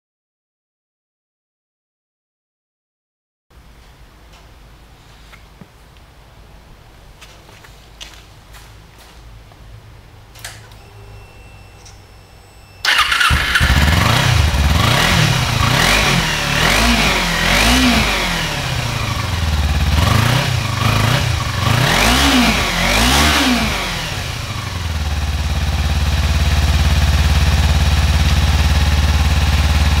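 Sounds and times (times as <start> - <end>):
vehicle engine starting and revving: 12.8 - 30.0.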